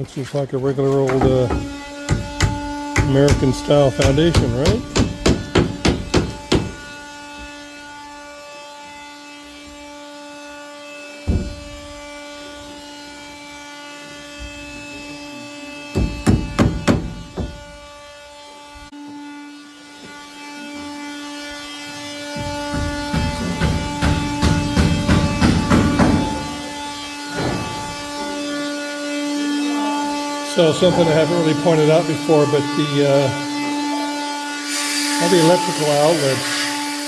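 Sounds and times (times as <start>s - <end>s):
hammer strikes: 1.0s - 7.0s, 11.2s - 12.1s, 15.9s - 17.8s, 22.2s - 28.4s.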